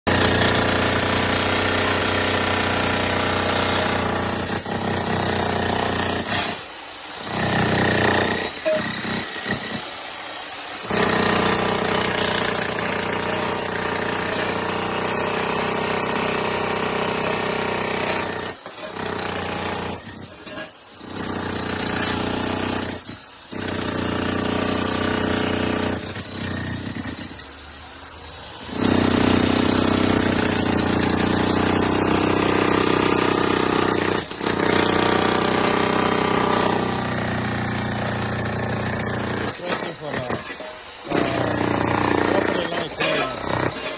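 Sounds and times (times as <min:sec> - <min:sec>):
loud machine noise: 0:00.1 - 0:43.9.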